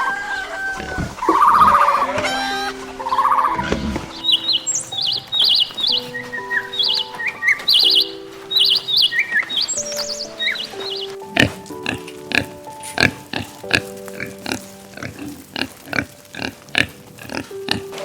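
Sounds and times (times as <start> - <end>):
background music of held notes: 0.0 - 18.0
small bird chirping: 4.1 - 12.0.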